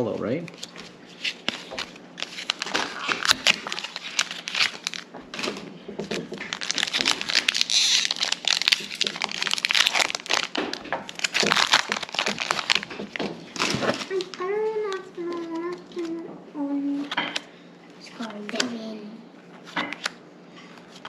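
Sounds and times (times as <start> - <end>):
plastic packaging crinkling: 0.5 - 16.1.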